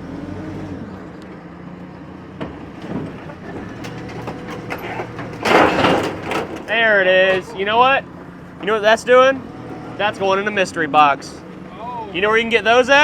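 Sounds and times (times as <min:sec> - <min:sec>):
diesel engine running: 0:00.0 - 0:13.0
metal clicks and knocks: 0:02.4 - 0:07.6.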